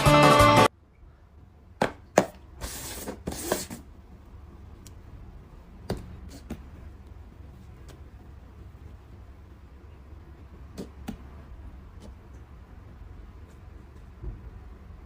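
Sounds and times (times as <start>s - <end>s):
music: 0.0s - 0.7s
low steady hum: 3.8s - 15.0s.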